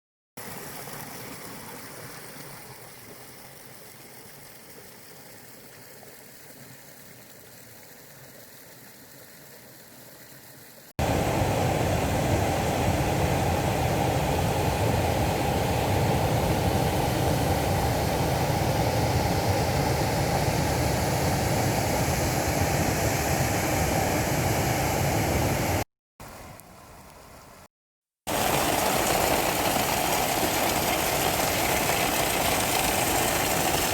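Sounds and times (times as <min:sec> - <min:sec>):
rain: 0:28.3 - 0:33.9
running water: 0:28.3 - 0:33.9.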